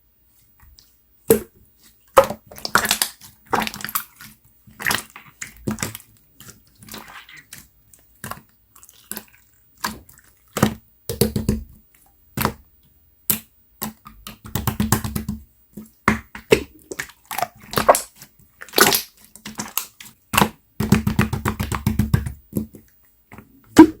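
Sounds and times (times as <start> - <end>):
slime squished by hand: 2.1 - 11.7, 16.0 - 21.9, 23.4 - 24.0.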